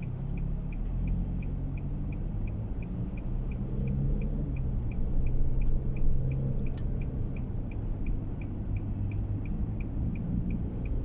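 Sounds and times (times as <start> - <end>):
engine and road rumble: 0.0 - 11.0
turn signal clicking: 0.0 - 11.0.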